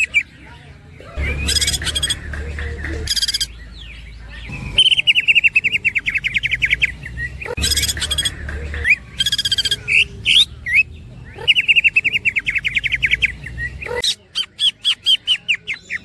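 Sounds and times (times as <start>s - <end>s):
bird singing: 0.0s - 16.0s
down-slurred bird whistles: 1.2s - 3.6s, 4.5s - 10.9s.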